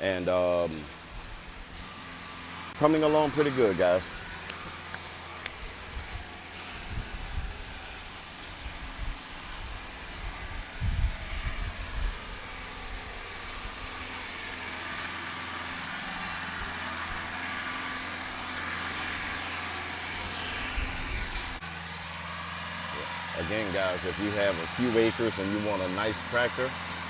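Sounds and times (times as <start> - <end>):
tractor diesel engine running: 0.0 - 27.0
wind buffeting microphone: 2.8 - 14.6, 20.0 - 21.6.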